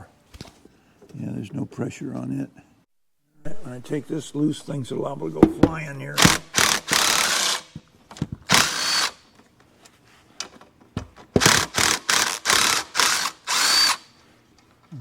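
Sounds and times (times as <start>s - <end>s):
power drill-driver bursts: 6.2s - 7.8s, 8.5s - 9.2s, 11.4s - 14.1s.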